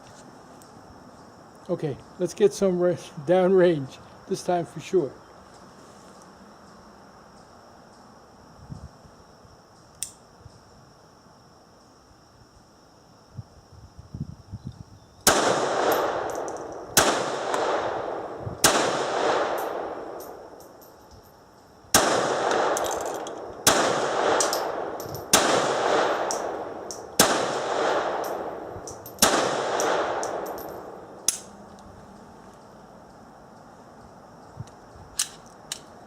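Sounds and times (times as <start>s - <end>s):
sharp click: 9.9s - 10.2s, 28.2s - 31.9s
pistol shots ringing out: 15.2s - 20.6s, 21.9s - 31.5s.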